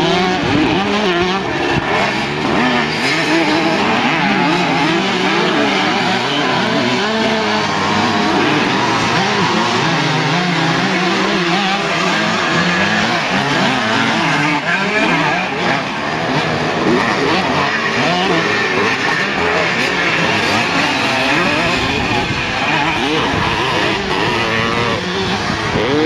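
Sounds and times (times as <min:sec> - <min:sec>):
motorcycle engines revving: 0:00.0 - 0:26.0.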